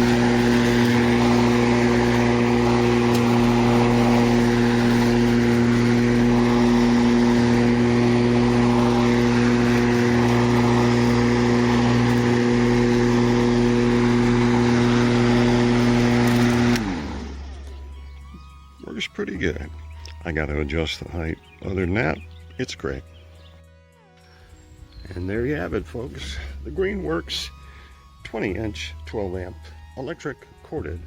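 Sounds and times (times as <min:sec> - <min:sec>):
motor and blade running down: 0:00.0 - 0:18.6
electric lawnmower running: 0:00.0 - 0:23.4, 0:24.3 - 0:31.0.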